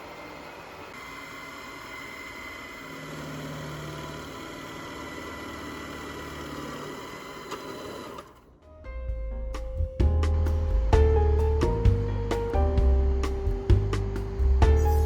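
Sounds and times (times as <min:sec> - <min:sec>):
mechanical hum and whir: 0:00.0 - 0:08.6, 0:10.0 - 0:15.0
low drone: 0:09.9 - 0:15.0.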